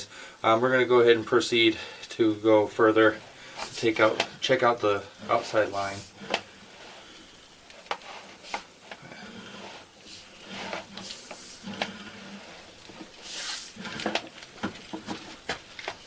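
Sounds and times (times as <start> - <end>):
brief hiss: 13.2 - 13.8.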